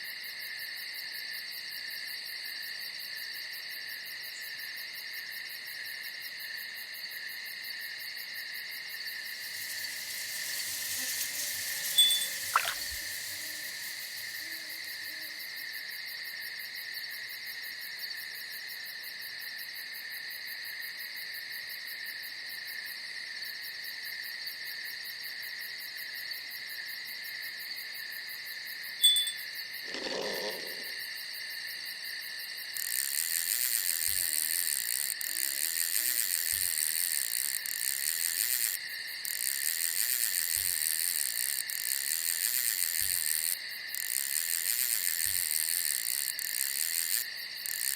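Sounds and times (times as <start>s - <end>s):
crickets chirring: 0.2s - 20.1s, 25.4s - 47.9s
fast-pulsing high chirp: 9.4s - 14.8s.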